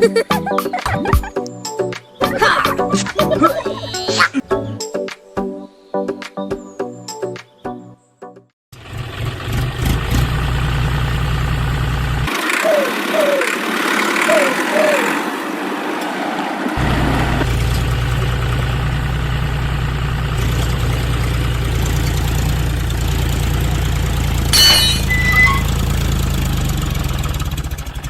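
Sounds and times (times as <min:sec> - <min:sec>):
tractor engine idling: 0:08.8 - 0:15.6, 0:16.8 - 0:28.0
short high beep: 0:24.6 - 0:25.8.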